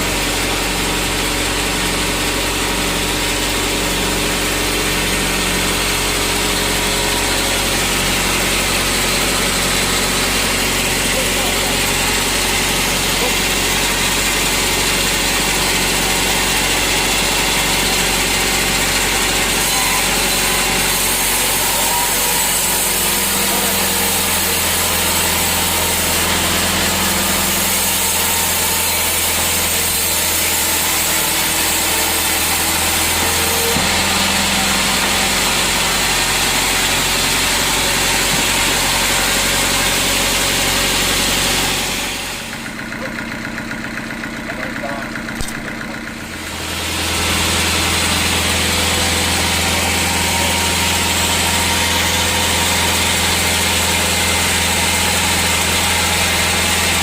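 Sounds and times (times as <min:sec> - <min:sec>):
saw hissing: 0:03.4 - 0:42.6.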